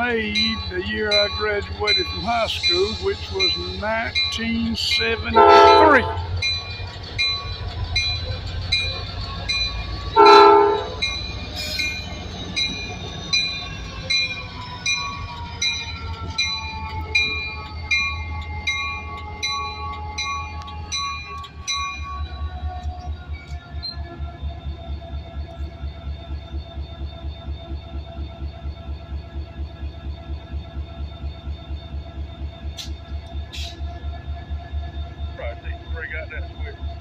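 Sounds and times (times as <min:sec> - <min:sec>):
bell ringing: 0:00.0 - 0:22.5
diesel engine rumble: 0:00.0 - 0:37.0
locomotive horn blast: 0:05.2 - 0:06.5, 0:10.1 - 0:11.0.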